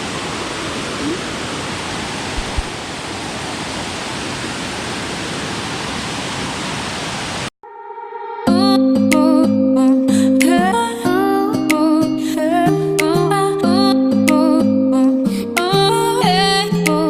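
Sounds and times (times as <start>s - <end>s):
waterfall rushing water: 0.0s - 7.5s
music: 7.6s - 17.0s.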